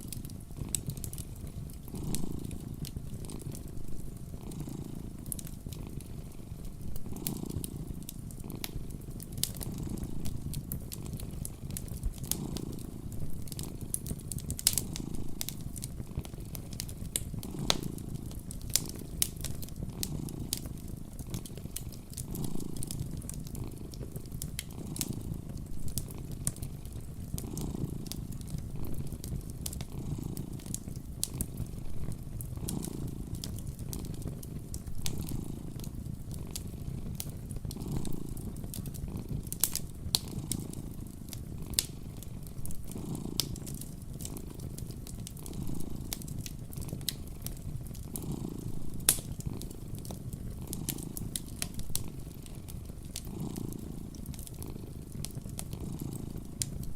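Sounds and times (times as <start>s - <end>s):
cat purring: 0.0s - 56.9s
wood fire crackling and popping: 0.0s - 56.9s.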